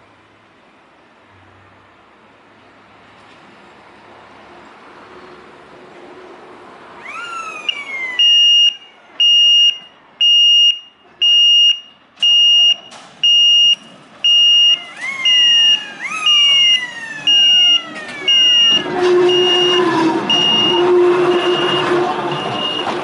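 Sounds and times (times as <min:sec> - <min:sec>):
electronic alarm beeping: 0:07.1 - 0:23.0.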